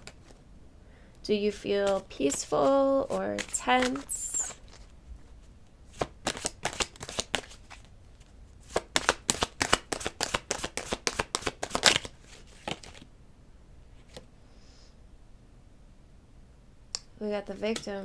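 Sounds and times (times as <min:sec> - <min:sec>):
cards being shuffled: 0:00.0 - 0:00.4, 0:01.7 - 0:13.1.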